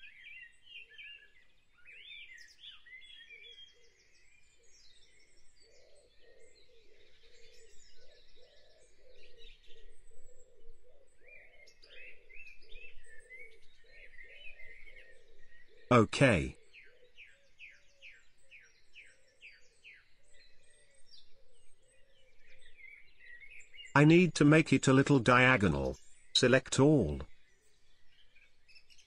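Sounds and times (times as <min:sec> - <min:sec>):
birds chirping and trilling: 0:00.2 - 0:15.9.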